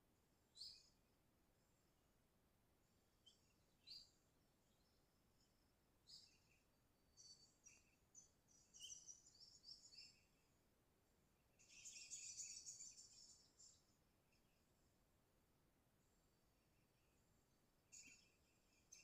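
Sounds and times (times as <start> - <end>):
bird chirping: 0.4 - 1.0, 2.9 - 10.6, 11.5 - 14.9, 16.0 - 19.0.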